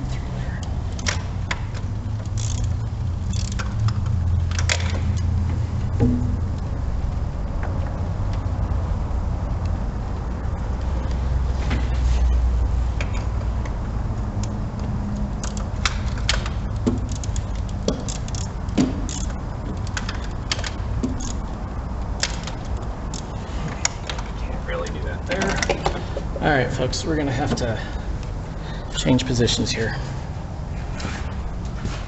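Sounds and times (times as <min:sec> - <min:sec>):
steady low rumble: 0:00.0 - 0:32.0
hand tools clicking and clinking: 0:15.2 - 0:21.5.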